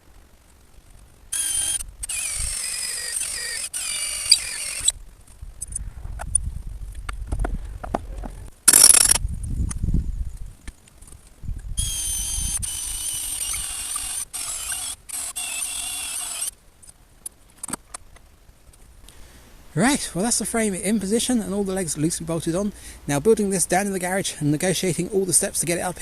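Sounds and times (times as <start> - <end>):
power drill whining: 1.4 - 5.0, 11.8 - 16.5.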